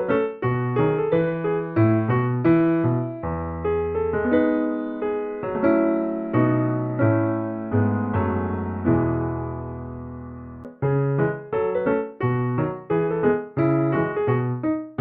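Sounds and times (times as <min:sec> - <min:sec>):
piano playing chords and melody: 0:00.0 - 0:15.0.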